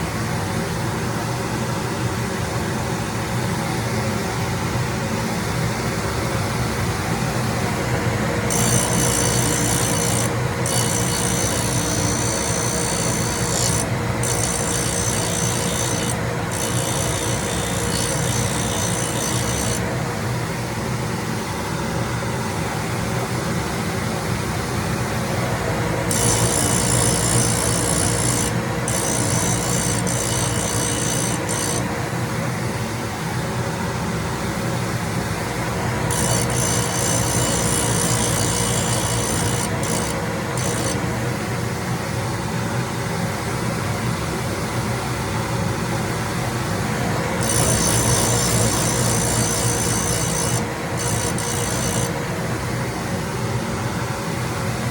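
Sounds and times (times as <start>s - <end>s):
grinding machine humming: 7.0s - 20.8s, 25.1s - 32.4s, 35.4s - 41.6s, 46.7s - 52.9s.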